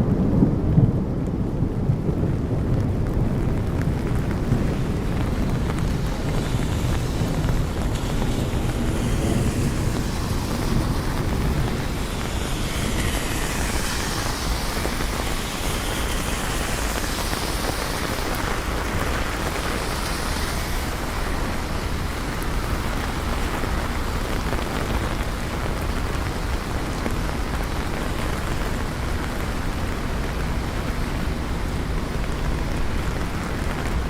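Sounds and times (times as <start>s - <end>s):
steady rain falling: 0.0s - 34.0s
traffic hiss on wet pavement: 2.1s - 34.0s.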